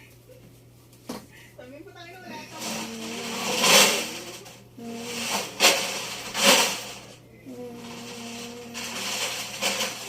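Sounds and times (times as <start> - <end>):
steady hum: 0.0 - 10.0
metal objects clanking in drum: 2.5 - 7.2, 7.8 - 10.0.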